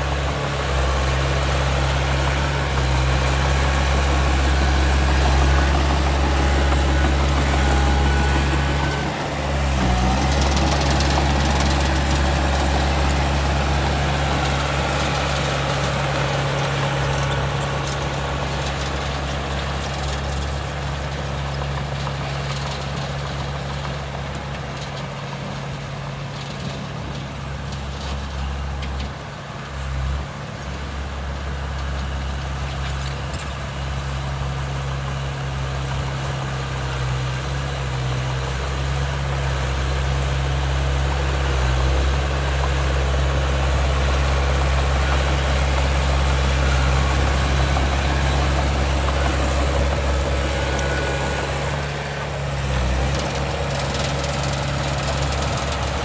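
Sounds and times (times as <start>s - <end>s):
diesel machinery low hum: 0.0s - 56.0s.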